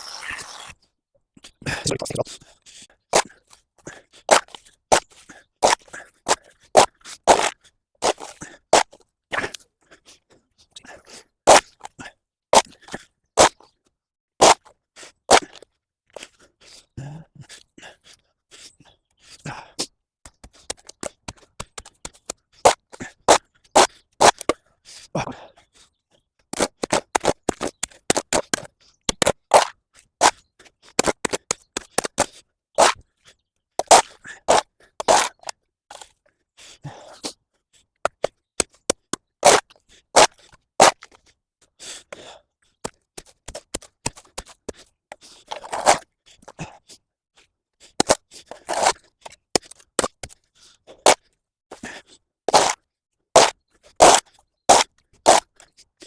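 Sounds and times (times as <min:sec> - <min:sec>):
hand tool scraping mud and gravel: 0:00.0 - 0:00.8, 0:26.6 - 0:33.0, 0:33.8 - 0:36.2, 0:38.1 - 0:41.2, 0:42.9 - 0:46.5, 0:47.8 - 0:51.2, 0:52.5 - 0:52.8, 0:53.4 - 0:55.7.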